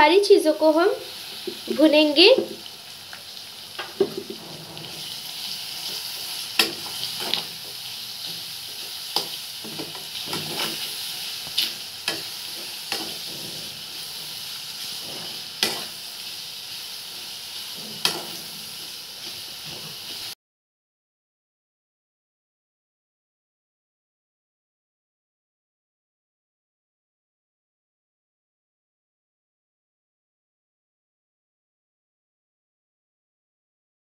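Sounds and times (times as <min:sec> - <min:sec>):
vegetables sizzling in oil: 0:00.1 - 0:20.4
spatula knocking and scraping pan: 0:01.4 - 0:02.6, 0:03.8 - 0:16.1, 0:17.2 - 0:20.3.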